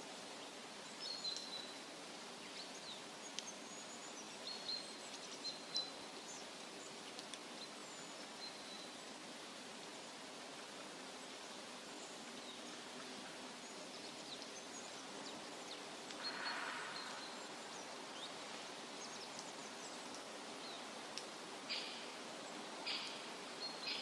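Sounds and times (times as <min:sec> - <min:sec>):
forest ambience hiss: 0:00.0 - 0:24.0
rustle: 0:00.0 - 0:24.0
faint high bird chirps: 0:16.2 - 0:17.5, 0:21.7 - 0:22.1, 0:22.8 - 0:24.0.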